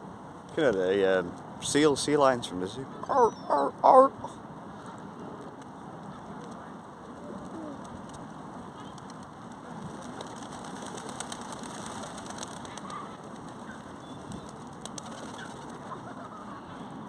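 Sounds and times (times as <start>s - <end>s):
outdoor background noise: 0.0s - 17.0s
faint bird calls: 2.9s - 6.4s, 12.3s - 17.0s.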